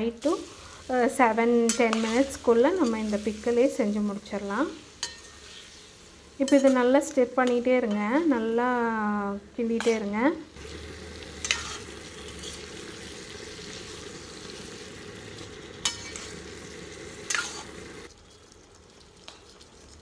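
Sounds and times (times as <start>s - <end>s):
food sizzling in oil: 0.0s - 9.0s, 9.6s - 20.0s
ladle scraping a pan: 11.4s - 12.9s, 15.8s - 16.5s, 17.2s - 17.8s.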